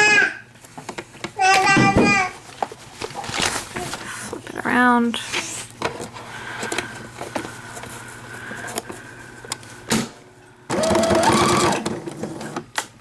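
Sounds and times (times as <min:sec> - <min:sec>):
sewing machine motor whining: 0:10.7 - 0:12.0.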